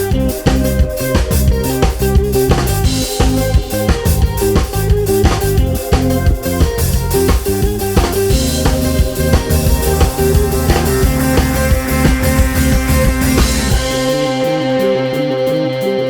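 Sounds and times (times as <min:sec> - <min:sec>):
bass: 0:00.0 - 0:16.0
drum kit: 0:00.0 - 0:16.0
guitar: 0:00.0 - 0:16.0
sustained tones: 0:08.3 - 0:15.7.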